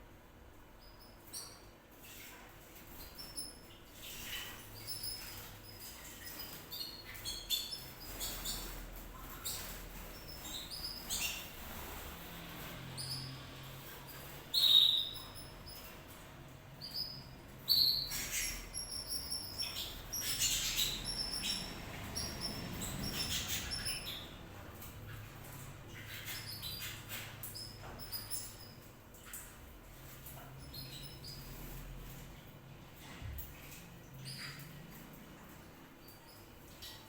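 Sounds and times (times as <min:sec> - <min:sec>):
canary chirping: 0:02.8 - 0:32.2.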